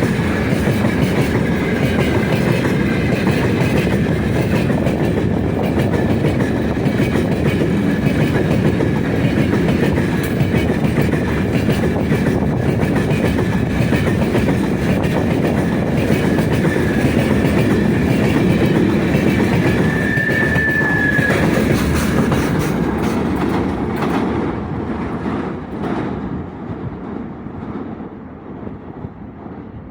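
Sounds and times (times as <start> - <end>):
wheels clattering over rail joints: 0.0 - 28.2
freight train wagons rolling: 0.0 - 28.7
high wheel squeal: 19.4 - 22.2.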